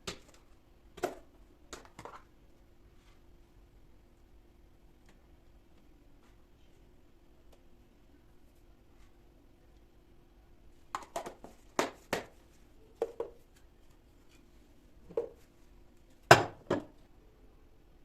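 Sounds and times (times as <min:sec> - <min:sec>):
faint steady hum: 0:00.0 - 0:18.0
household objects knocking: 0:16.3 - 0:16.9.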